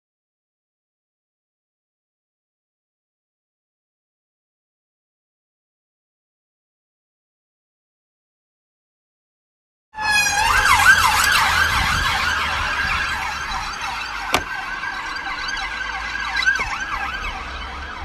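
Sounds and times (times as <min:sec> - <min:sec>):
emergency vehicle siren: 0:10.0 - 0:18.0.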